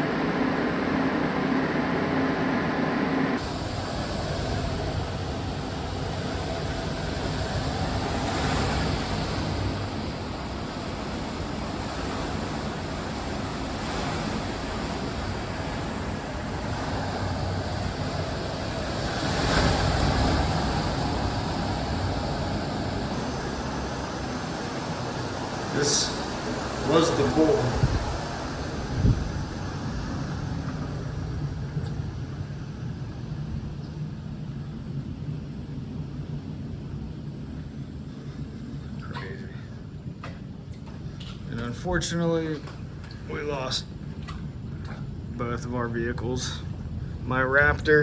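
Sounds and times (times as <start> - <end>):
wind noise rushing: 0.0 - 35.2
steady hum: 0.0 - 48.0.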